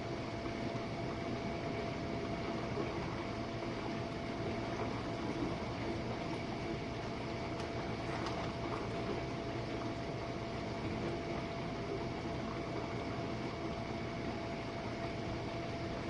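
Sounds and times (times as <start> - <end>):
dishwasher hum: 0.0 - 16.0.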